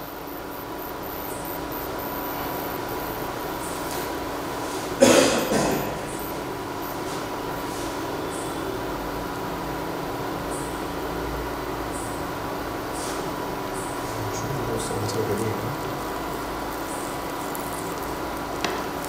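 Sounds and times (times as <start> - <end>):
steady hum: 0.0 - 19.0
food sizzling in oil: 16.0 - 19.0.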